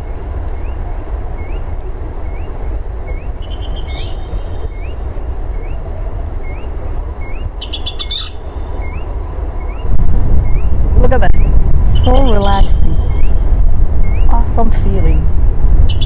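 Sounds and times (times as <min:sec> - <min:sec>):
steady low rumble: 0:00.0 - 0:16.0
bird rapid trill: 0:02.3 - 0:05.0, 0:06.4 - 0:10.7.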